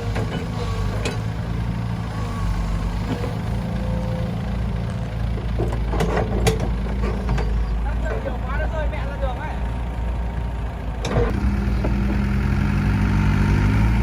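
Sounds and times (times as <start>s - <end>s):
diesel engine running: 0.0s - 14.0s
metallic knocks and clanks: 5.4s - 8.4s.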